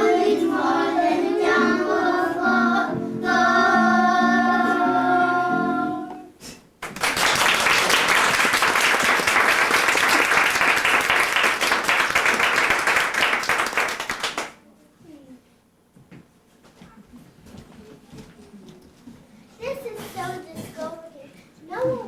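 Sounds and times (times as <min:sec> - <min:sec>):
children's choir singing: 0:00.0 - 0:06.4
audience applauding: 0:06.8 - 0:14.6.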